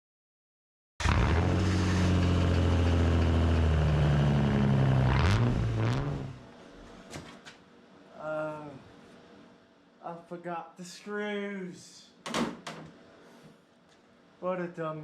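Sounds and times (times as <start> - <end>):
car engine running: 1.0 - 6.5.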